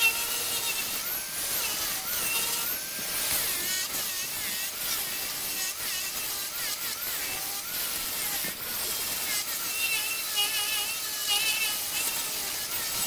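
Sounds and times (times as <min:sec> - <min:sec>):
lathe cutting tool hissing: 0:00.0 - 0:13.0.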